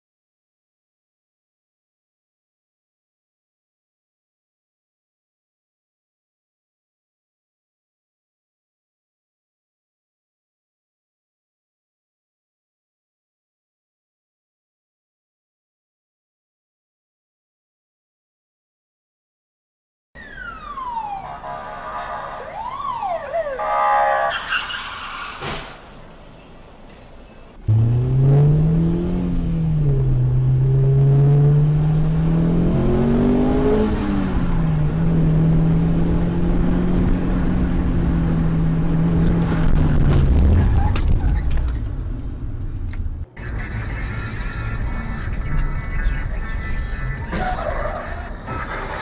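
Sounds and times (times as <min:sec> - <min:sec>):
siren-like sliding tones: 0:20.2 - 0:26.5.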